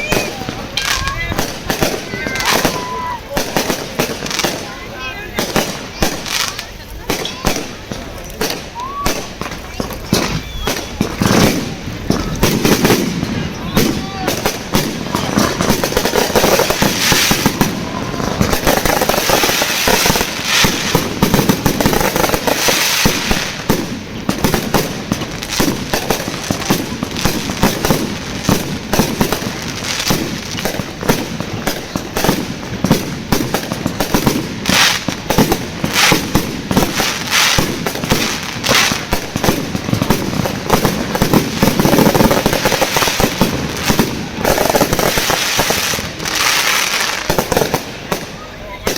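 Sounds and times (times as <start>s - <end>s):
fireworks bangs and crackles: 0.0s - 48.9s.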